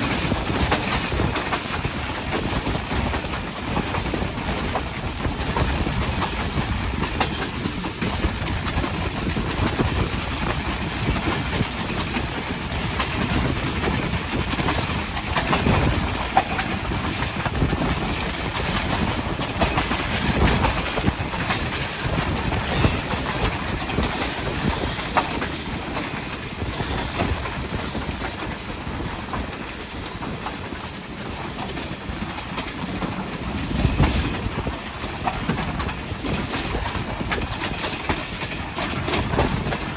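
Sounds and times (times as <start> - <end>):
train wheels clattering on track: 0.0 - 39.9
high wheel squeal: 18.3 - 18.8, 22.8 - 32.0.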